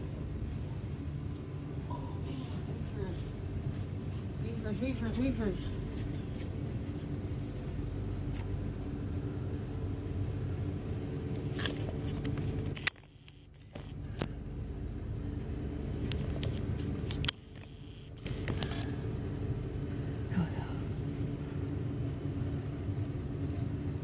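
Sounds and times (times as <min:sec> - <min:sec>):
freight train rumbling: 0:00.0 - 0:12.7, 0:18.3 - 0:24.0.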